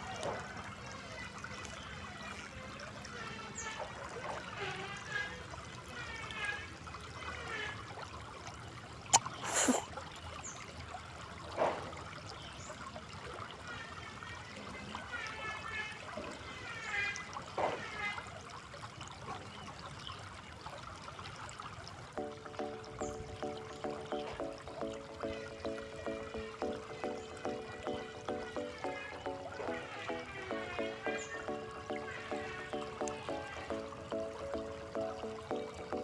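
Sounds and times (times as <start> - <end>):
river water flowing: 0.0 - 36.0.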